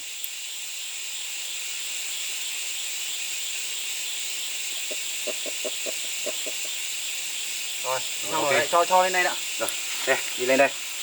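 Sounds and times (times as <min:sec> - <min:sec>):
insect chorus hissing: 0:00.0 - 0:11.0.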